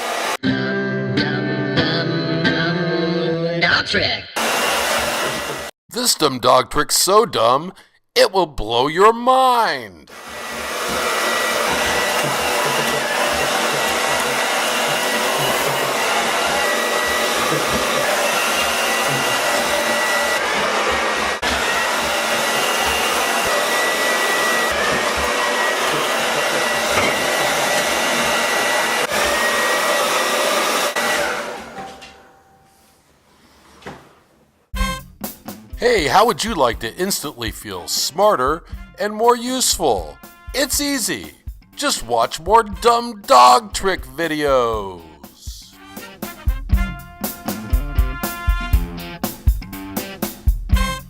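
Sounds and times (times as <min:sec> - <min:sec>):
hair dryer blowing: 0:00.0 - 0:00.4, 0:04.4 - 0:05.7, 0:10.1 - 0:32.2.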